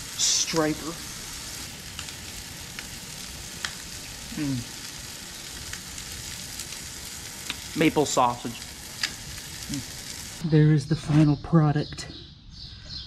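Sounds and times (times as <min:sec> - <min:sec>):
fish frying in a pan: 0:00.0 - 0:10.4.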